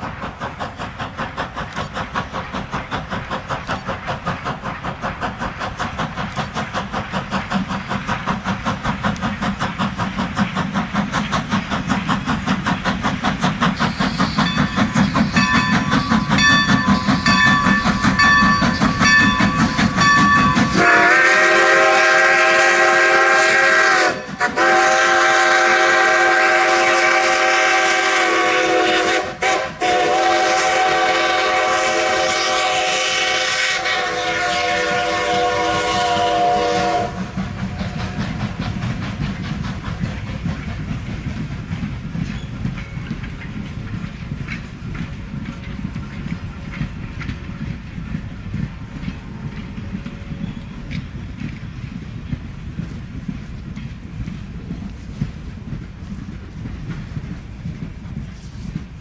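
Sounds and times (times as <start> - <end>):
train rhythmic beat: 0.0 - 59.0
train whistle chord: 13.8 - 38.3
ringing bell: 14.4 - 20.8.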